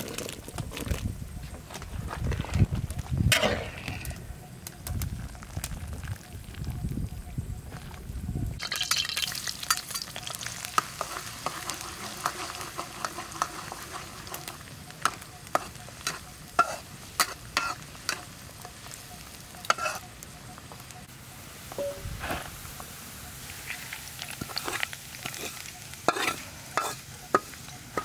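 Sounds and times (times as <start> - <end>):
garlic sizzling in oil: 8.6 - 28.0
metal ladle clinking and scraping wok: 8.7 - 20.0, 23.6 - 28.0.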